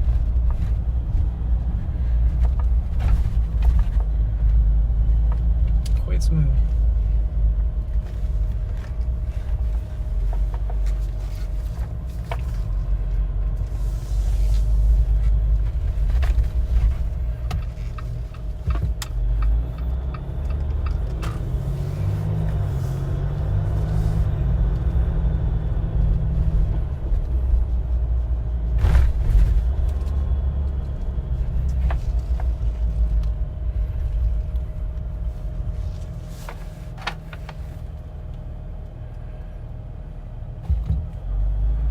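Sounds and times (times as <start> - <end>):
knocks and rattles over bumps: 0.0 - 5.9, 14.9 - 23.7, 40.6 - 41.2
engine and road rumble: 0.0 - 41.9.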